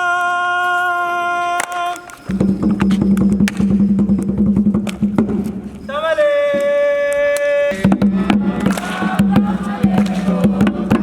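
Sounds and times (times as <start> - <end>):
long high held cry: 0.0 - 2.1
drum beats: 2.3 - 5.8, 7.7 - 11.0
group chanting and singing: 5.8 - 11.0.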